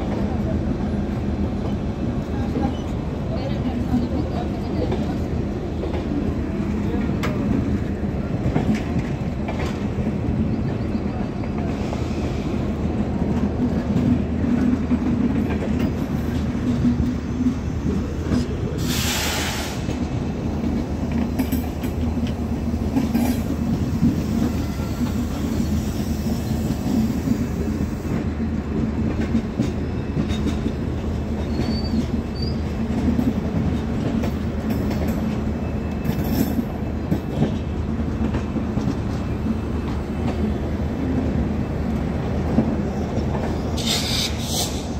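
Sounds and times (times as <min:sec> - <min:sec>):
train wheels rumbling on rails: 0:00.0 - 0:44.9
brief hiss: 0:18.8 - 0:19.9.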